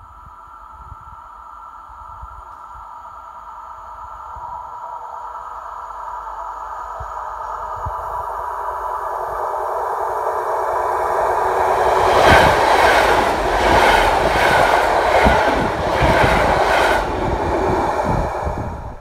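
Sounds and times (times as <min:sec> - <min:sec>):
train passing at speed: 0:03.0 - 0:19.0
wheels clacking over rail joints: 0:10.7 - 0:18.2.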